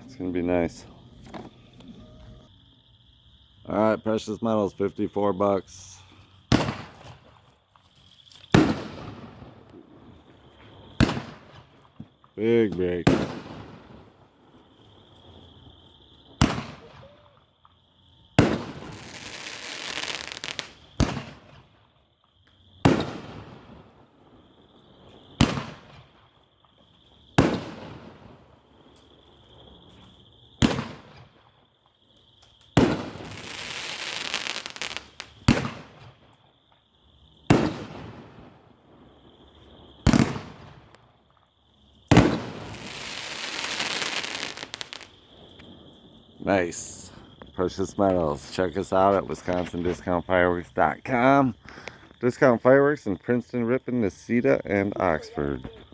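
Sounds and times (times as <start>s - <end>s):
crackling hiss of fireworks: 0.0s - 55.9s
firework booms: 6.5s - 7.4s, 8.5s - 14.3s, 16.2s - 17.2s, 18.4s - 21.7s, 22.8s - 24.0s, 25.2s - 26.2s, 27.4s - 28.5s, 30.6s - 31.5s, 32.7s - 36.3s, 37.4s - 41.2s, 42.1s - 48.2s.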